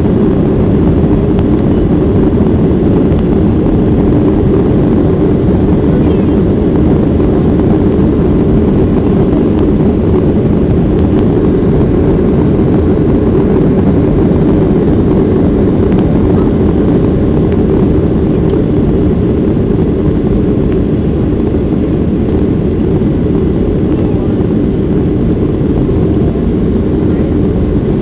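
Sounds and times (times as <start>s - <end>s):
jet engines at takeoff power: 0.0s - 28.0s.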